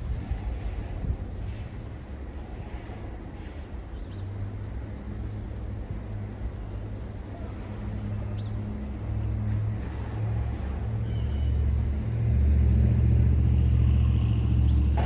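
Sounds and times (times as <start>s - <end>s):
low outdoor rumble: 0.0s - 15.0s
vehicle engine running: 4.7s - 15.0s.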